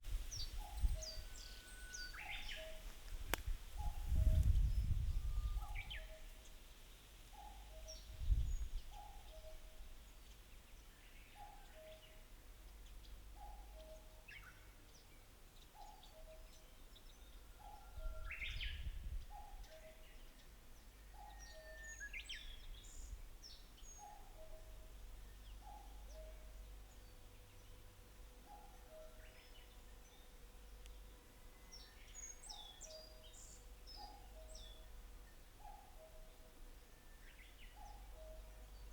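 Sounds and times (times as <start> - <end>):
click: 3.3 - 3.5.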